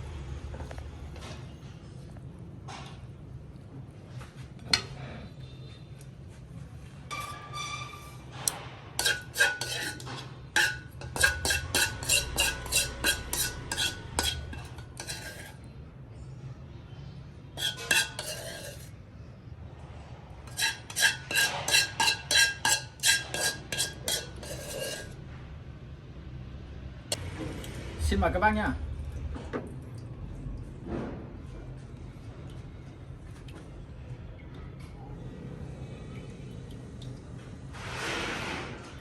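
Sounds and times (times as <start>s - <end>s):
metal utensil clinking on cookware: 8.5s - 15.6s, 17.6s - 18.9s, 20.5s - 25.2s.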